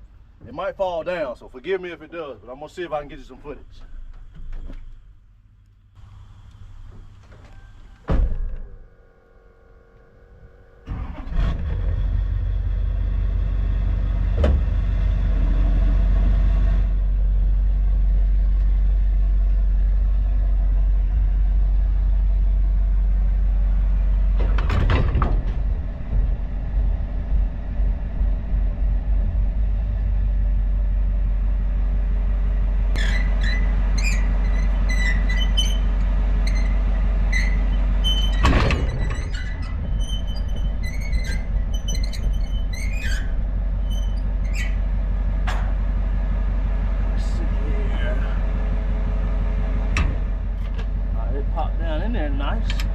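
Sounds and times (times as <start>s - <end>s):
trailer coupling clunks: 6.9s - 8.8s, 24.3s - 26.4s, 32.9s - 46.0s, 49.8s - 51.1s, 52.6s - 52.9s
hitch squeaking and creaking: 32.9s - 45.8s
pickup truck engine running: 39.0s - 52.9s.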